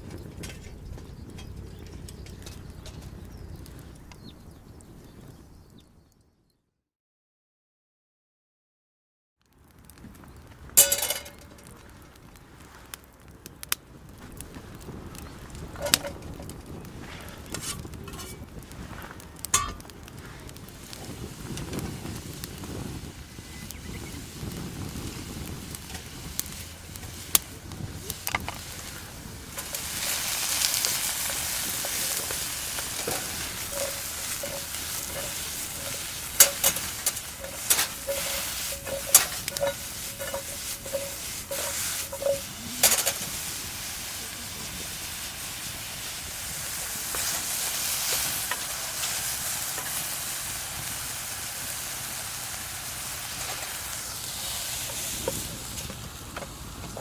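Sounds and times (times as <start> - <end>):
utensil scraping a pan: 17.0 - 19.0, 28.1 - 45.2, 53.4 - 56.1
food sizzling in a frying pan: 20.7 - 57.0.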